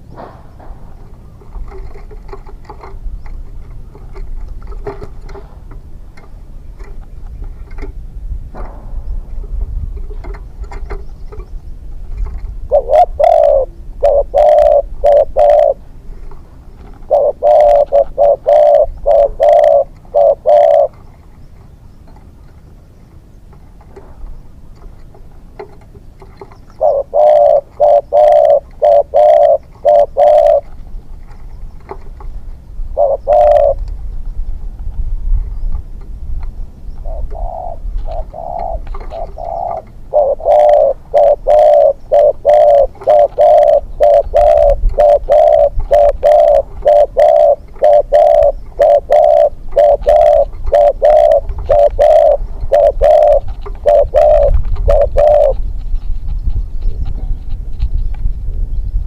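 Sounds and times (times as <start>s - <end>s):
dove cooing: 0.0s - 6.9s, 12.2s - 21.2s, 24.8s - 32.2s, 32.9s - 33.9s, 37.0s - 57.6s.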